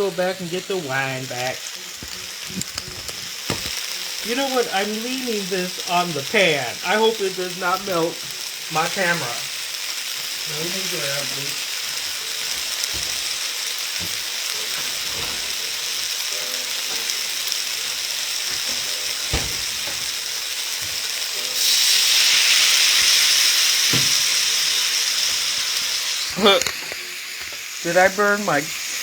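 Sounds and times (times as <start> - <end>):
food sizzling in a wok: 0.0 - 29.0.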